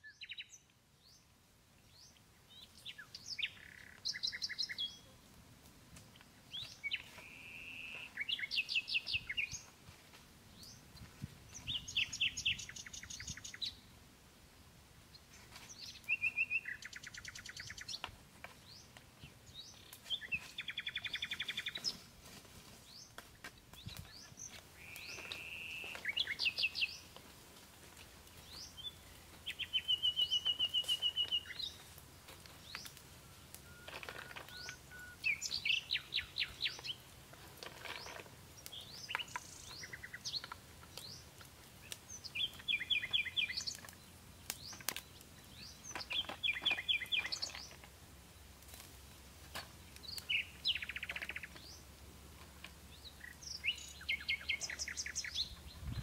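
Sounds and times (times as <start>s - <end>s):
songbird whistle and trill: 0.0s - 0.6s, 2.6s - 5.1s, 6.5s - 9.7s, 11.6s - 13.8s, 15.8s - 18.0s, 19.7s - 22.0s, 24.8s - 27.0s, 28.5s - 31.8s, 32.6s - 37.0s, 42.1s - 44.0s, 45.5s - 47.8s, 50.0s - 51.8s, 53.1s - 56.0s.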